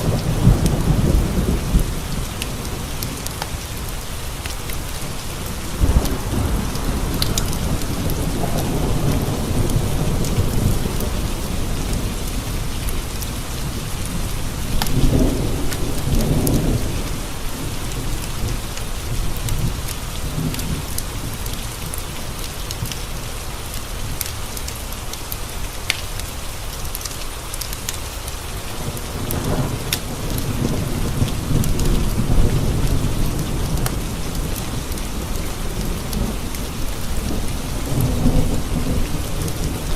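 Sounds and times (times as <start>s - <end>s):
rolling thunder: 0.0s - 3.7s, 5.0s - 21.4s, 28.7s - 39.9s
heavy rain on window glass: 0.0s - 39.9s.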